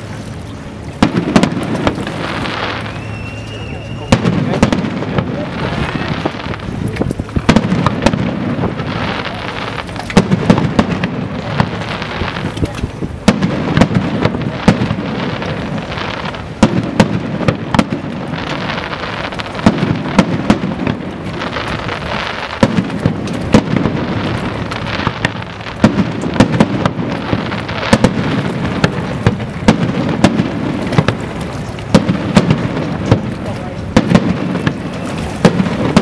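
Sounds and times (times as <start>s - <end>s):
fireworks bangs and crackles: 0.0s - 36.0s.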